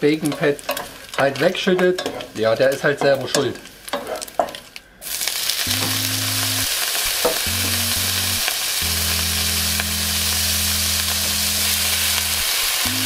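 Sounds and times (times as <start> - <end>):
spatula moving food in pan: 0.0 - 5.9
fish sizzling in a pan: 0.0 - 13.0.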